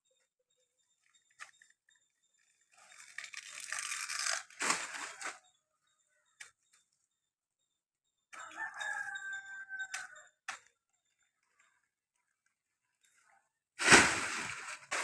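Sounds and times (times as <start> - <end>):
rooster crowing: 8.4 - 10.4.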